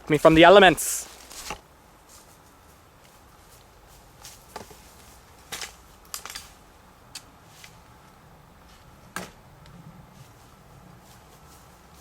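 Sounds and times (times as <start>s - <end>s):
brush rustling and sticks snapping: 1.0s - 8.2s.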